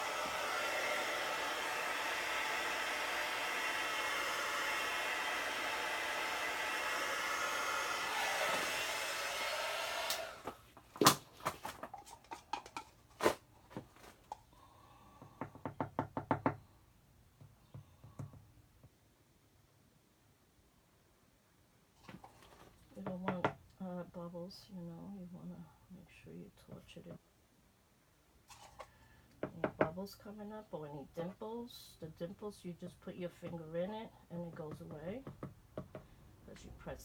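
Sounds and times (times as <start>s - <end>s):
blowtorch flame hissing: 0.0s - 10.5s
knocks and taps: 15.2s - 16.6s, 17.4s - 18.9s, 34.7s - 36.1s.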